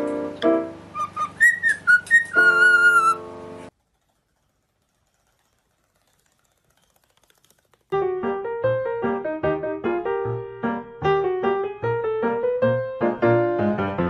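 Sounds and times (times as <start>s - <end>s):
keyboard or piano music: 0.0s - 3.7s, 8.0s - 14.0s
cockatiel whistling: 0.9s - 3.2s.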